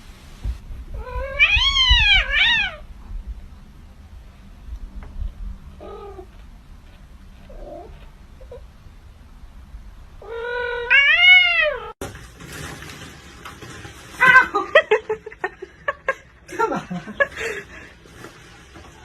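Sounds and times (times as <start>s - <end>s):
cat mewing: 1.0s - 2.8s, 10.2s - 12.0s
cat yowling: 1.0s - 2.8s, 10.2s - 12.0s.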